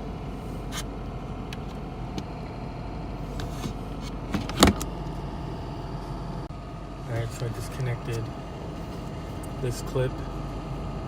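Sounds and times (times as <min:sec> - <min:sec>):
idling car hum inside cabin: 0:00.0 - 0:11.0.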